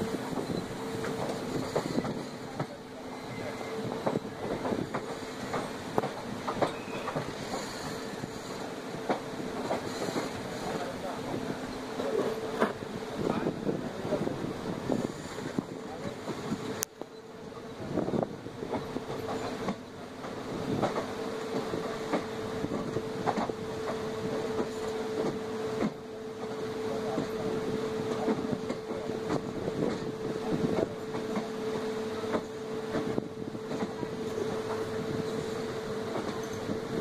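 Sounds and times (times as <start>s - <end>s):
passenger train rumble: 0.0s - 37.0s
wheels clicking over rail joints: 4.0s - 12.8s, 36.1s - 37.0s.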